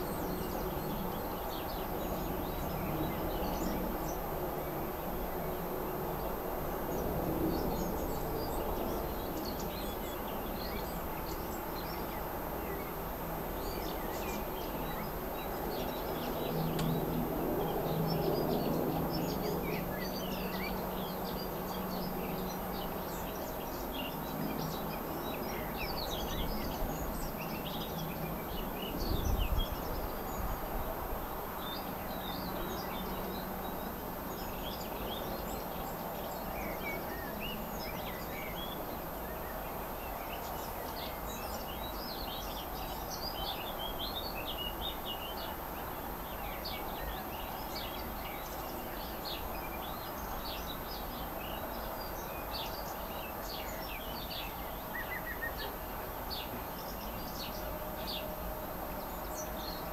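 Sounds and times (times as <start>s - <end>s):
outdoor background hiss: 0.0s - 59.9s
small birds chirping and trilling: 0.0s - 59.9s.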